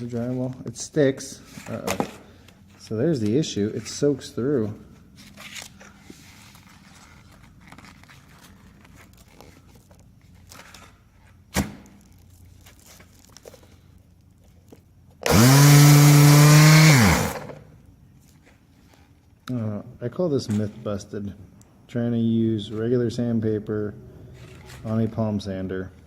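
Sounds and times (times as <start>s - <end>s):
quiet handling sounds: 0.0s - 15.2s
electric palm sander buzzing: 15.2s - 17.6s.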